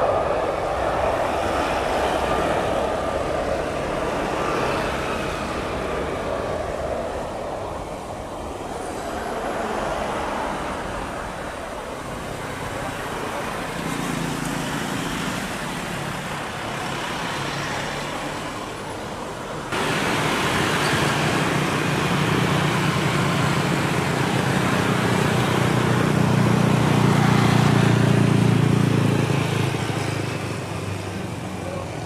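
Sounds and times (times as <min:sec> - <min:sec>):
jet engine rumble: 0:00.0 - 0:14.1, 0:18.2 - 0:32.0
airliner spooling up for takeoff: 0:19.8 - 0:31.6.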